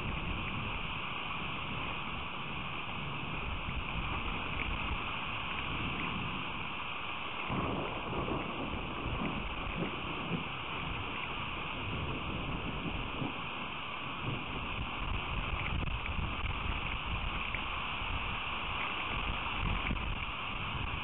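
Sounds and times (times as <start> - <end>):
steady rain hiss: 0.0 - 21.0
wind rumble on microphone: 0.0 - 21.0
rain drop ticks: 2.8 - 6.7, 7.3 - 13.4, 14.2 - 21.0.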